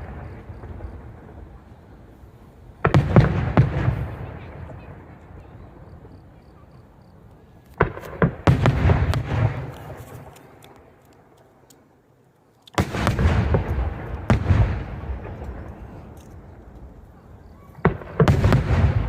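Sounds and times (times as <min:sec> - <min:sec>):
fireworks bursting: 0:00.0 - 0:06.4, 0:07.0 - 0:11.9, 0:12.7 - 0:19.0.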